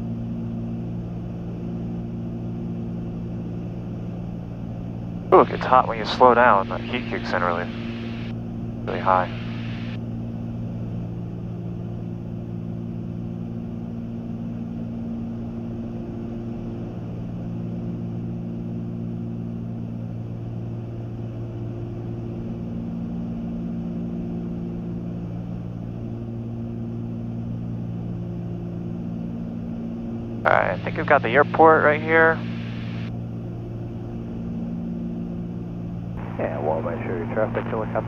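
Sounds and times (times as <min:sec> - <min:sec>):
aircraft engines cabin drone: 0:00.0 - 0:38.0.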